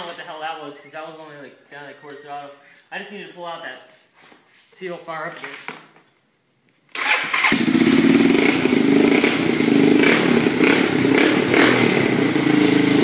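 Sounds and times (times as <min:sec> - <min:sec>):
atv engine running: 0:07.5 - 0:13.0.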